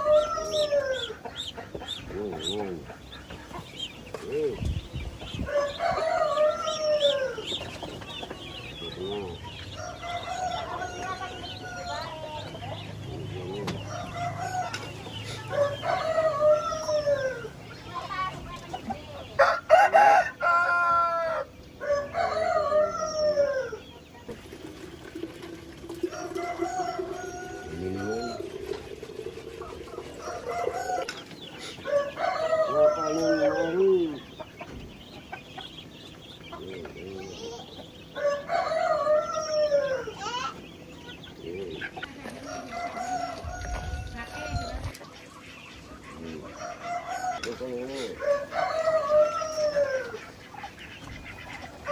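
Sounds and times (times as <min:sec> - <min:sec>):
rooster crowing: 0:00.0 - 0:01.2, 0:05.5 - 0:07.5, 0:09.7 - 0:12.3, 0:13.9 - 0:17.5, 0:19.4 - 0:23.8, 0:25.5 - 0:31.1, 0:31.8 - 0:34.0, 0:38.2 - 0:40.1, 0:42.4 - 0:44.9, 0:46.5 - 0:50.2
small birds chirping: 0:00.0 - 0:19.5, 0:21.4 - 0:51.9
rooster clucking: 0:24.4 - 0:32.8.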